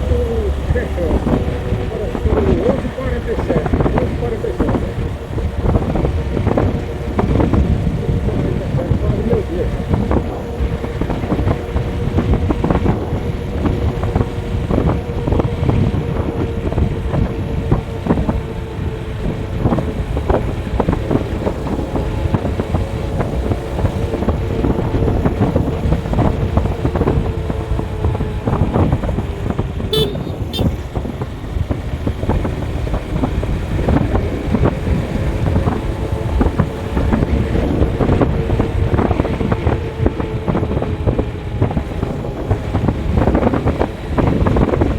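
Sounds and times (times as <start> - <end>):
road and wind noise: 0.0 - 44.9
vehicle engine running: 0.0 - 44.9.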